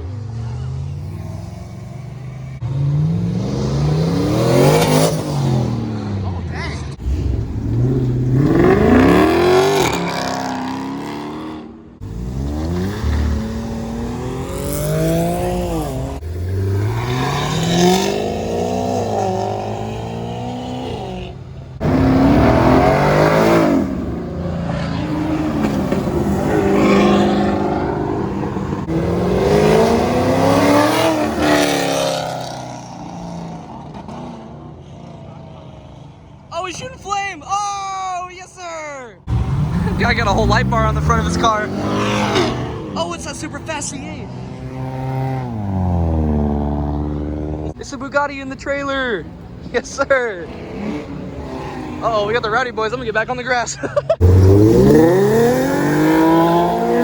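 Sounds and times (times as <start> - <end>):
cars accelerating past: 0.0 - 36.5, 39.2 - 47.8, 50.3 - 52.7, 54.1 - 57.0
car starting up: 0.4 - 11.2.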